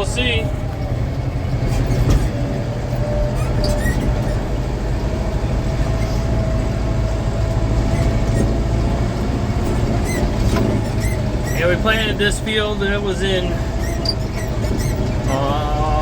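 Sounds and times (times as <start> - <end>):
tractor engine rumbling: 0.0 - 16.0
short squeaks and clicks: 1.6 - 4.7, 5.8 - 6.5, 7.4 - 11.8, 13.6 - 15.6.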